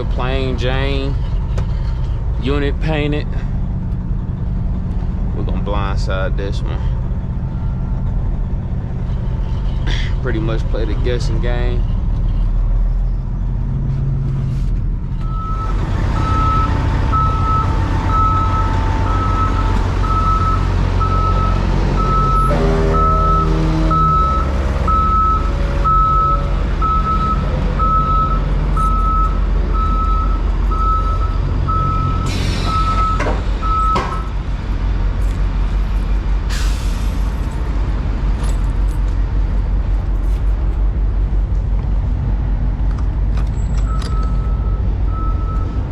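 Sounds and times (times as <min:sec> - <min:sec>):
truck diesel engine running: 0:00.0 - 0:45.9
reversing alarm beeping: 0:15.2 - 0:34.4, 0:43.8 - 0:45.9.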